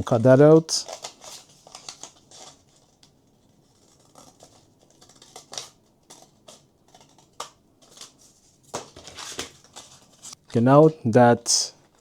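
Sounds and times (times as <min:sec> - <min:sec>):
scissors cutting paper: 0:00.1 - 0:08.2.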